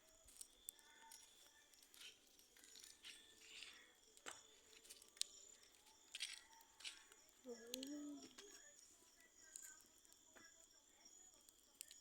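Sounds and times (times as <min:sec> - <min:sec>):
faint sharp clicks and snaps: 0:06.1 - 0:08.7, 0:11.5 - 0:12.0.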